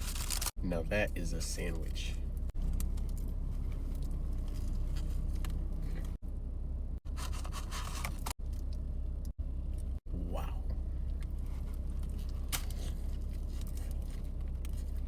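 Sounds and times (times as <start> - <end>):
paper wrapper crinkling: 0.0 - 0.5
steady low hum: 0.0 - 15.0
chewing: 11.1 - 15.0.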